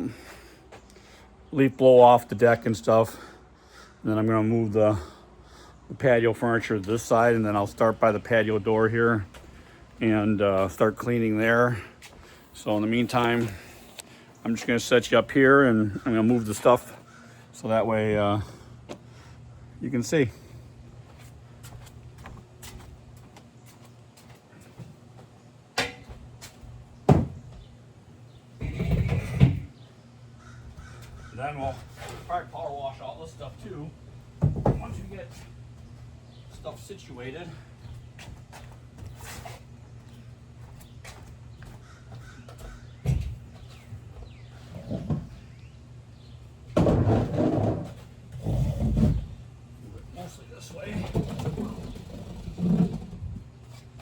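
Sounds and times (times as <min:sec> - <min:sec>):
furniture knocking on wooden deck: 0:34.4 - 0:35.0.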